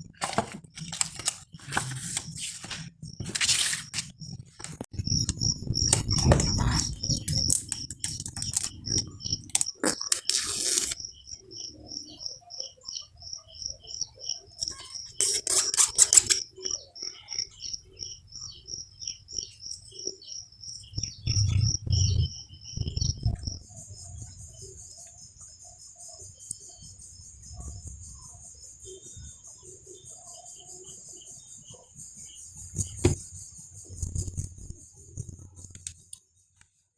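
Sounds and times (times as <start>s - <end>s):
cardboard box being handled and opened: 0.2s - 4.1s
rapid insect-like chirping: 5.0s - 36.8s.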